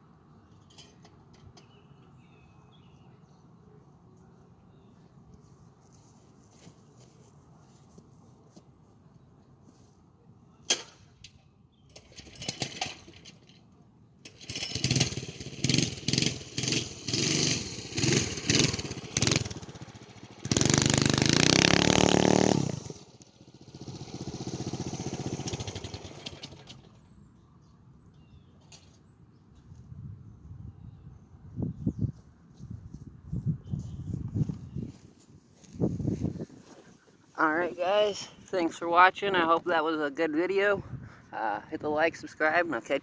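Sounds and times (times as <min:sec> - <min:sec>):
mini bike engine revving: 0:12.0 - 0:13.2, 0:14.3 - 0:27.0.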